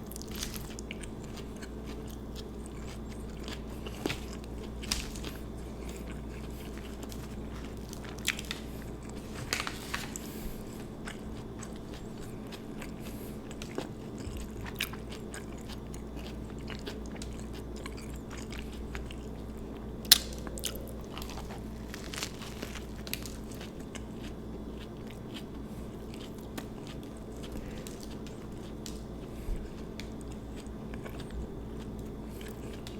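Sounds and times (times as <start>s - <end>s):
chewing and biting sandwich: 0.0s - 32.9s
low hum: 17.7s - 32.4s.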